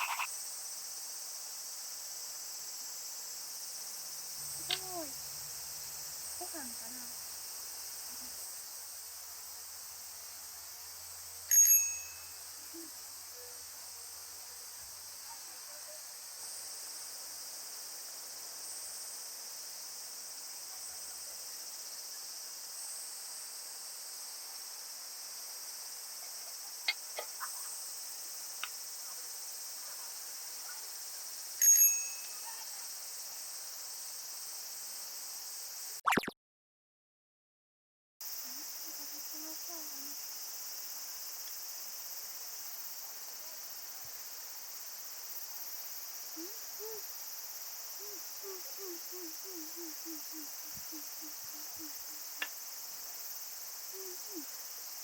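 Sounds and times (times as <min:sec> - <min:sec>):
insects chirring: 0:00.0 - 0:36.3, 0:38.2 - 0:55.0
bell-like dings: 0:11.5 - 0:12.4, 0:31.6 - 0:32.4.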